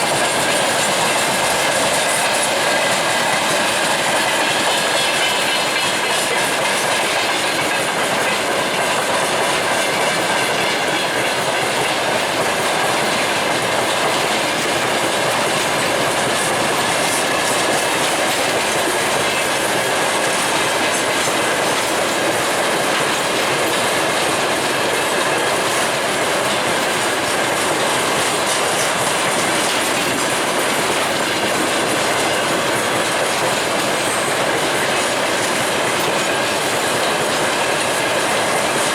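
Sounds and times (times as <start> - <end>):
high whine from train wheels: 0.0 - 38.9
train wheels clattering over rail joints: 0.0 - 38.9.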